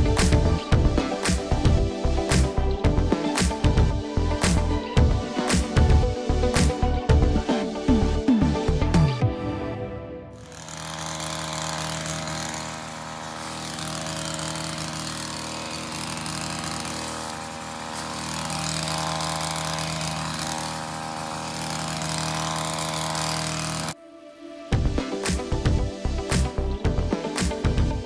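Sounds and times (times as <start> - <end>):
small petrol engine running: 10.4 - 24.0.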